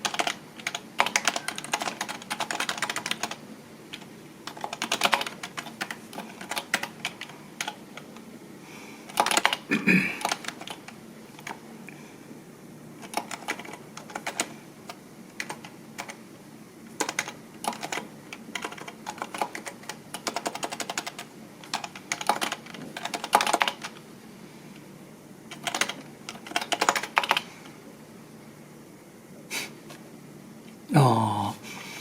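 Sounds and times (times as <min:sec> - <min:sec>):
computer keyboard typing: 0:00.0 - 0:08.2, 0:09.1 - 0:11.6, 0:13.0 - 0:16.2, 0:17.0 - 0:24.0, 0:25.5 - 0:27.5.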